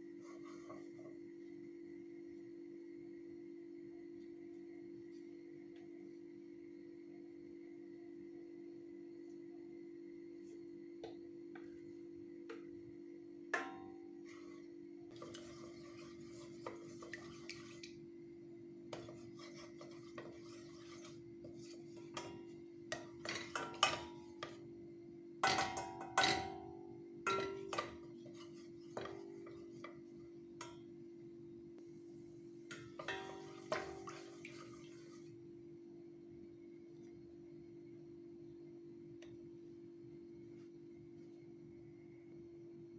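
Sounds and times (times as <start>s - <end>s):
utensils and dishes clinking: 22.1s - 24.5s, 25.4s - 26.7s, 27.3s - 29.8s.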